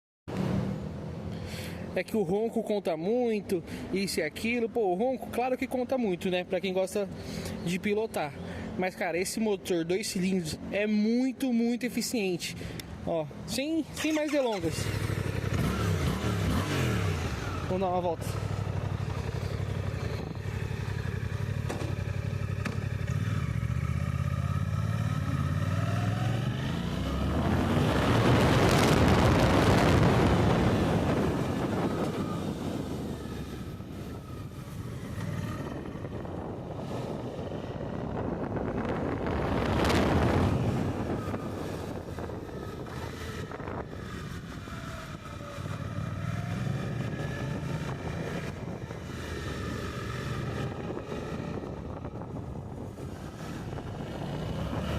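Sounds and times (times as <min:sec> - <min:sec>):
rush of wind: 0:12.2 - 0:54.9
motorcycle engine accelerating: 0:14.0 - 0:54.9.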